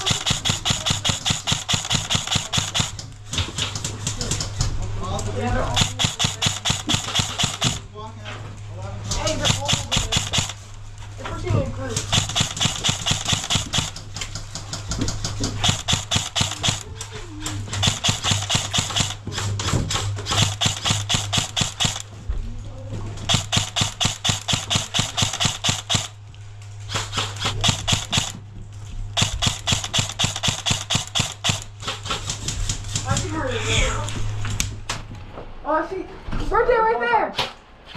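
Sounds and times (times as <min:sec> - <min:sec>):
airsoft guns firing full auto: 0:00.0 - 0:03.1, 0:05.6 - 0:07.9, 0:09.2 - 0:10.7, 0:12.0 - 0:14.2, 0:15.4 - 0:16.9, 0:17.6 - 0:19.4, 0:20.0 - 0:22.1, 0:23.3 - 0:26.2, 0:26.9 - 0:28.4, 0:29.2 - 0:32.0
steady low hum: 0:00.0 - 0:36.8.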